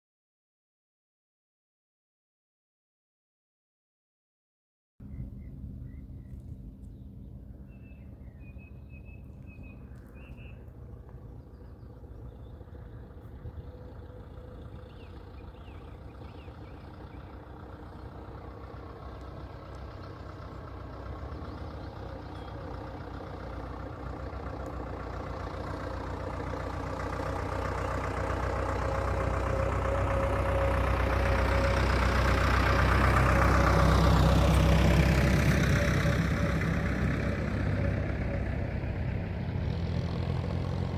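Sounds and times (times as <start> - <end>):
bird chirps: 5.0 - 18.7, 21.3 - 23.3
tractor engine running: 5.0 - 40.9.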